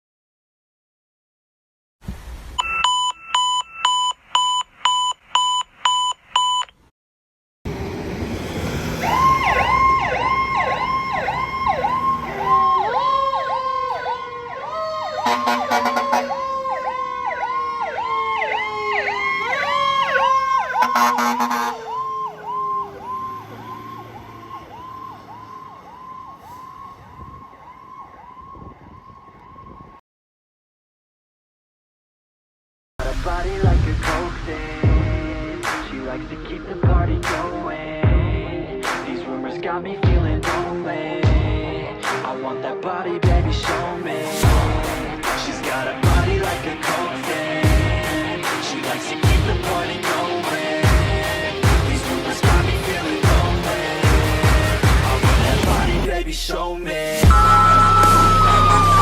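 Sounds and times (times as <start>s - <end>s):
electronic beeps: 2.6s - 6.7s, 57.3s - 59.0s
fire engine siren yelp: 7.7s - 30.0s, 57.2s - 59.0s
siren falling wails: 7.8s - 30.0s, 57.2s - 59.0s
horn blasts: 15.2s - 16.4s, 20.8s - 21.9s, 57.3s - 59.0s.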